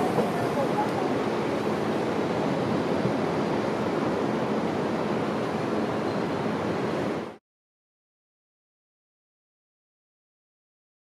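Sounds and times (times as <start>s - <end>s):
street traffic roar: 0.0s - 7.4s.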